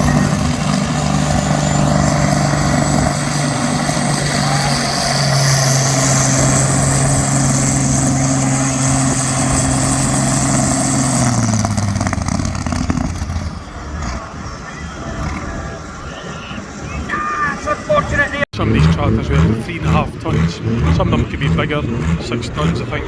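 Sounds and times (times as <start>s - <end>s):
high whine: 0.0s - 13.8s
engine running at high revs: 0.0s - 23.0s.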